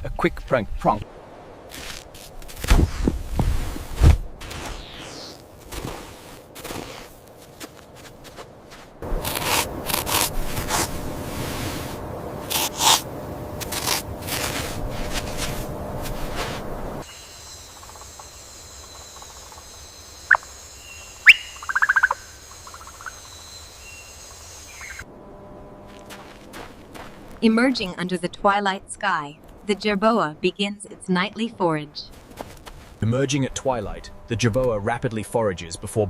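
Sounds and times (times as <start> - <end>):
steady high-pitched hum: 9.0 - 29.0, 33.0 - 36.0
bird chirps and trill: 18.8 - 25.0.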